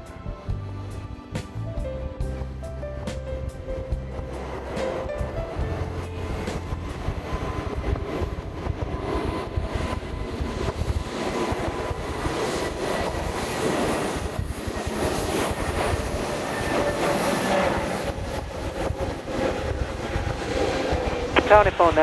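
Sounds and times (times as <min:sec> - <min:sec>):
jet airliner engine rumble: 0:00.0 - 0:22.0.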